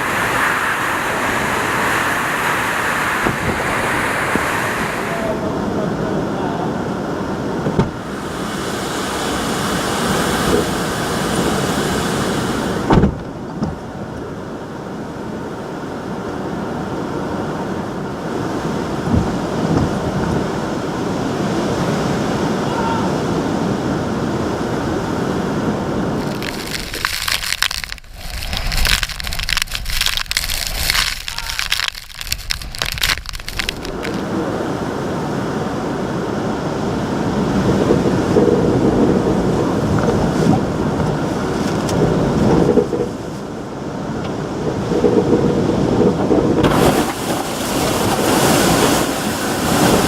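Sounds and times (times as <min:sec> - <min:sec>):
driving rain hits: 0:00.0 - 0:50.0
strong wind blowing: 0:00.0 - 0:50.0
loud thud: 0:12.9 - 0:13.3.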